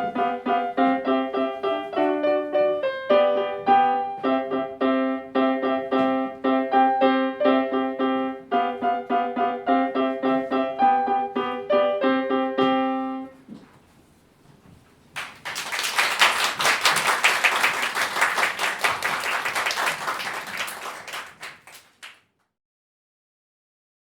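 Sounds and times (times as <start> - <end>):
piano chord: 0.0 - 13.4
audience clapping: 15.2 - 22.3.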